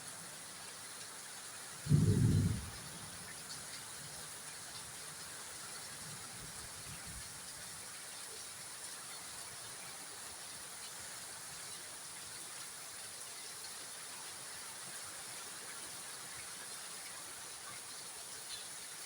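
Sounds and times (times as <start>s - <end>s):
rain hissing: 1.8s - 4.9s.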